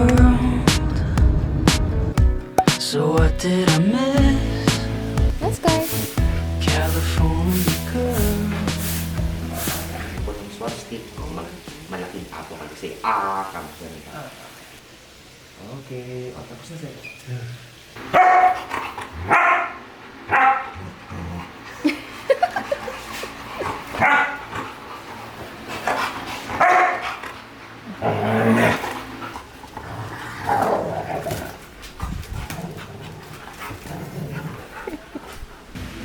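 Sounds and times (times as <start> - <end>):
dog barking: 18.1 - 20.8, 24.0 - 24.4, 26.6 - 27.1.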